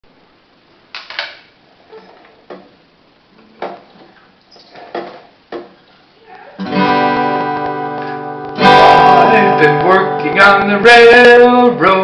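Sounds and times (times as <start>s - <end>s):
irregular knocks and clicks: 2.4s - 2.8s, 4.8s - 5.8s.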